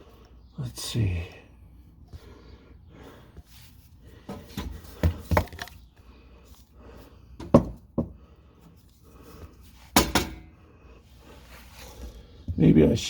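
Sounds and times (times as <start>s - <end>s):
tools knocking on exhaust: 7.4s - 8.2s.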